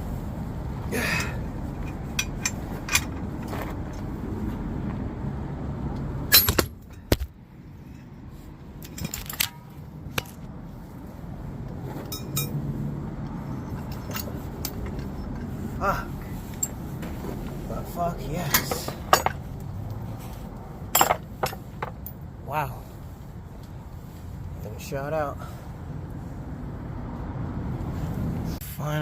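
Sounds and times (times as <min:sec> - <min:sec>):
metal clicks and clinks: 0:01.2 - 0:03.2, 0:08.8 - 0:10.4, 0:12.1 - 0:12.6, 0:13.6 - 0:15.5, 0:20.9 - 0:22.2.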